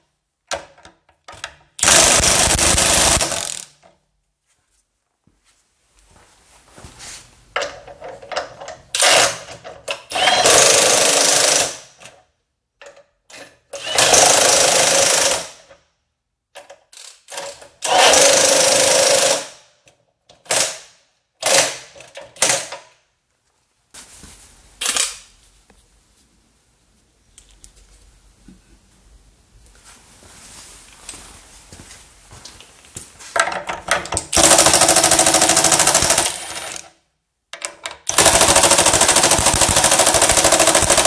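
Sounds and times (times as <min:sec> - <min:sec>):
impact wrench hammering: 0:01.8 - 0:03.7, 0:34.3 - 0:36.8, 0:38.1 - 0:41.0.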